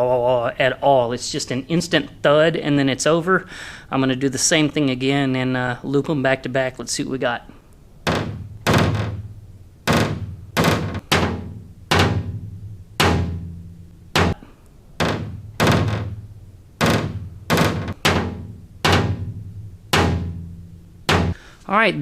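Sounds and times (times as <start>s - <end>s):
hammer tapping steel panel: 8.0s - 21.4s.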